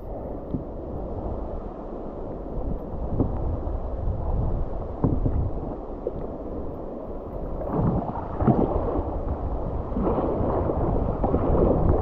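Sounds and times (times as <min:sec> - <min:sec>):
river water rushing and splashing: 0:00.0 - 0:12.0
wind rumbling on microphone: 0:00.0 - 0:12.0.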